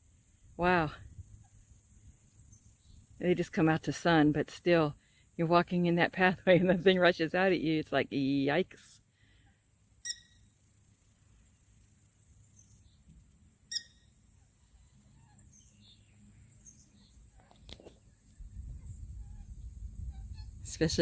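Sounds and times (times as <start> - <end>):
high insect buzz: 0.0 - 3.7, 8.9 - 20.7
sharp bird calls: 10.0 - 10.4, 13.7 - 14.0
faint bird chirps: 10.0 - 10.8, 11.7 - 14.2.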